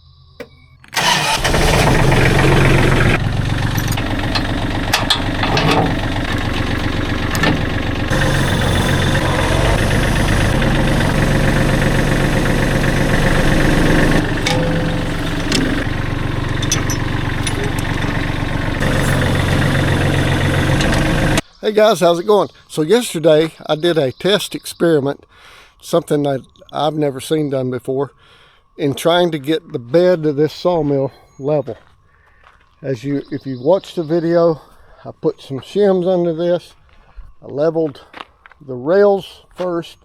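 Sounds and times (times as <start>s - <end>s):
gasoline engine starting and running: 0.2s - 21.4s.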